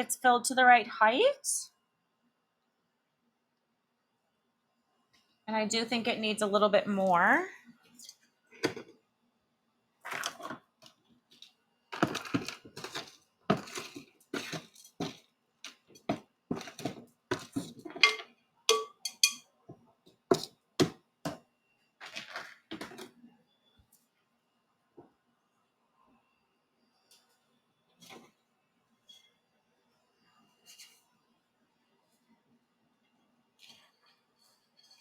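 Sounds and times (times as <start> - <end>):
potting mix scraping and rustling: 10.0 - 10.6, 11.3 - 18.1, 22.0 - 23.2.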